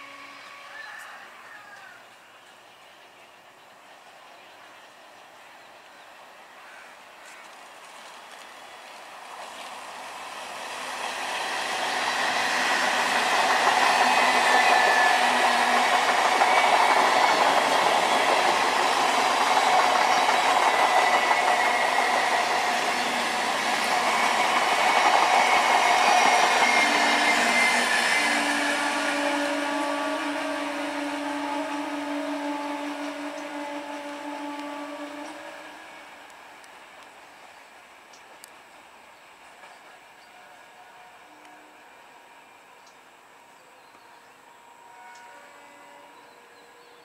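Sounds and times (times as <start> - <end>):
train passing on rails: 0.0 - 47.0.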